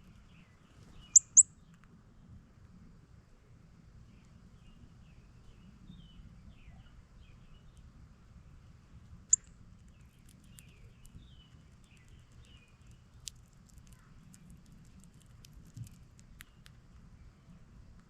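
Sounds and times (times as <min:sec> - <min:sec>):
bird chirps: 0:00.2 - 0:01.6.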